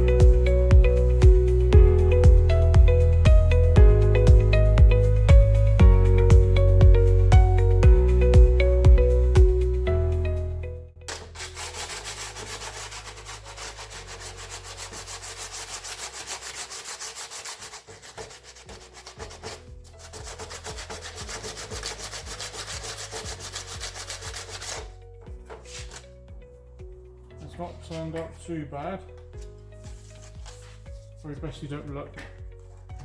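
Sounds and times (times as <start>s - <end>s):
background music: 0.0s - 33.0s
sandpaper rubbing on metal: 11.1s - 24.9s.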